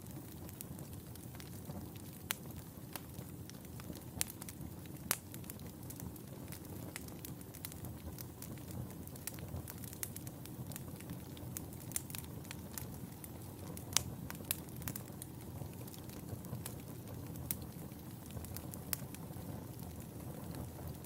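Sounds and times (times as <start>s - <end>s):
fire pops and snaps: 0.0s - 21.0s
wood fire crackling: 0.0s - 21.0s.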